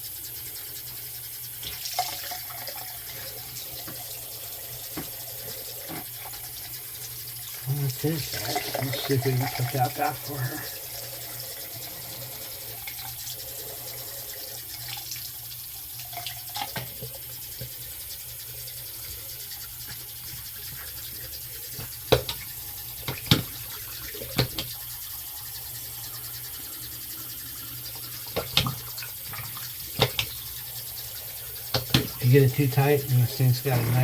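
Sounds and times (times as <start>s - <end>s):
faucet running into sink: 0.6s - 34.0s
sharp knocks and clicks: 21.8s - 23.6s, 24.2s - 24.8s, 28.3s - 30.5s, 31.7s - 32.2s.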